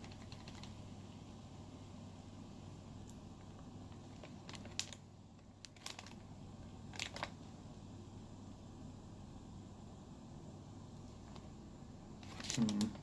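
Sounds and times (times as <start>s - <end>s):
packaging clicks and crinkles: 0.0s - 0.8s, 3.4s - 6.3s, 6.9s - 7.4s, 12.2s - 13.0s
low steady hum: 0.0s - 13.0s.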